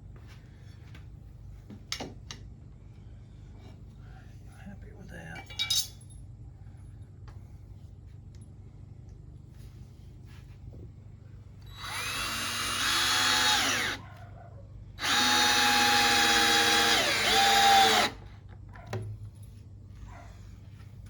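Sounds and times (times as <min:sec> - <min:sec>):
power drill driving screws into wood: 0:11.7 - 0:14.0, 0:15.0 - 0:18.2.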